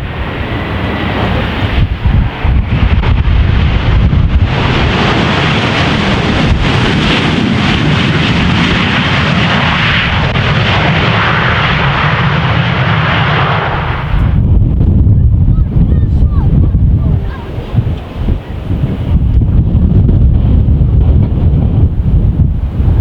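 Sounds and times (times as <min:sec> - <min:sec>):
jet engines roaring: 0:00.0 - 0:23.0
wind rumbling on microphone: 0:00.0 - 0:23.0.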